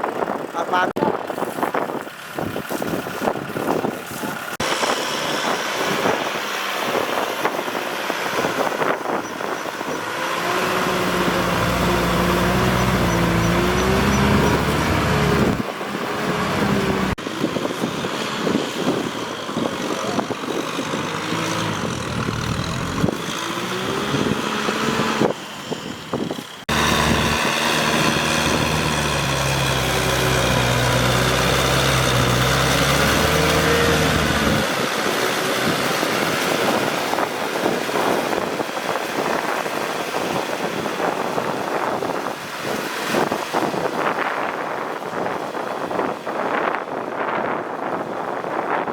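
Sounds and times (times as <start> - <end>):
tractor diesel engine working: 0.0 - 43.8
rough noisy wash: 10.0 - 25.2, 26.7 - 46.4.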